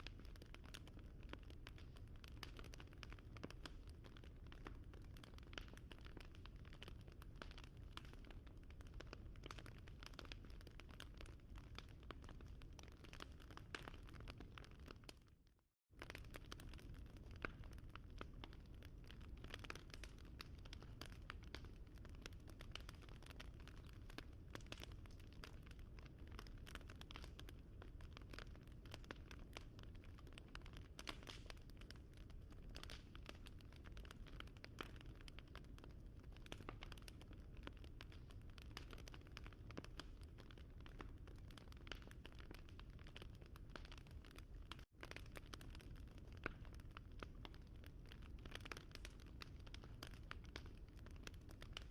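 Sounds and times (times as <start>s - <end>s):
wood fire crackling: 0.0s - 15.2s, 16.0s - 51.9s.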